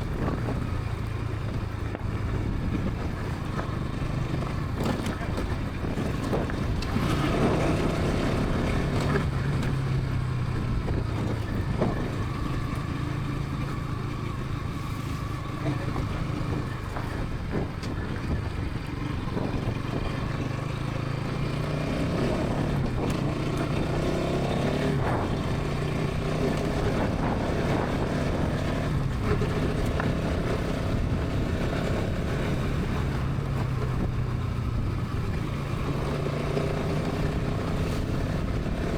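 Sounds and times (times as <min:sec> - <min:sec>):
motorcycle engine at speed: 0:00.0 - 0:38.9.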